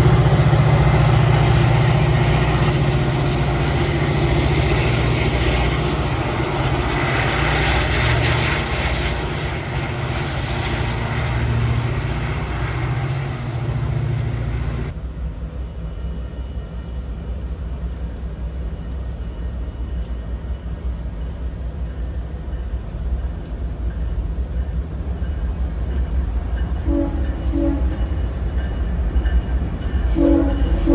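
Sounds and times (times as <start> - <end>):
diesel train engine drone: 0.0 - 30.9.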